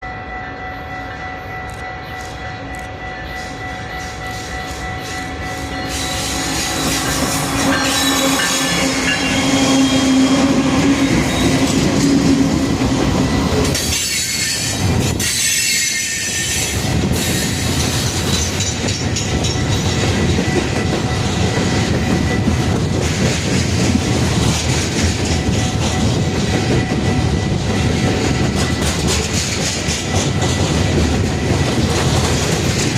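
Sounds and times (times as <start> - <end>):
diesel locomotives passing: 0.0 - 32.9
squealing train wheels: 0.0 - 32.9
train wagons rumbling: 2.0 - 32.9
wheels clickety-clack: 10.5 - 32.9.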